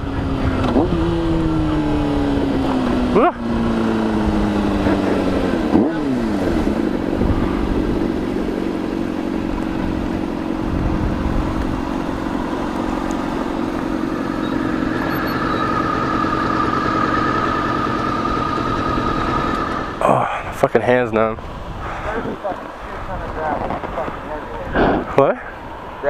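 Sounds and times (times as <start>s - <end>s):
wind rumble on microphone: 0.0s - 13.8s, 21.3s - 25.8s
motorcycle engine running: 0.0s - 20.3s
high steady whine: 10.8s - 20.0s.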